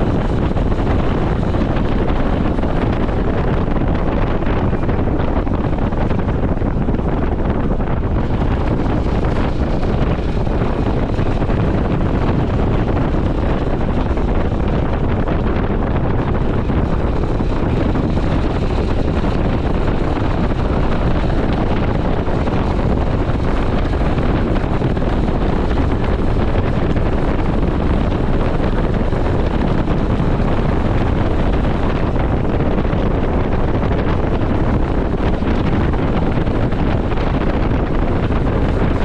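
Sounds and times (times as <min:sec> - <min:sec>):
motorcycle engine running: 0:00.0 - 0:39.0
wind buffeting microphone: 0:00.0 - 0:39.0.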